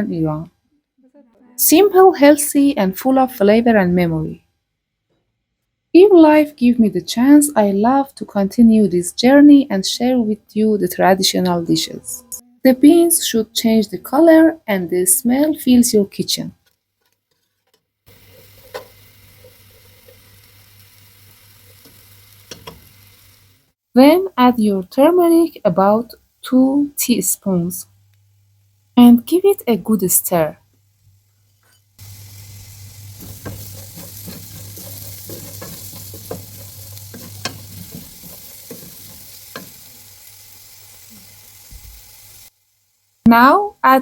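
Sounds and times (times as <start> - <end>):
beans sizzling in oil: 18.1 - 23.8, 30.7 - 43.2
spoon knocking against pot: 33.2 - 39.8.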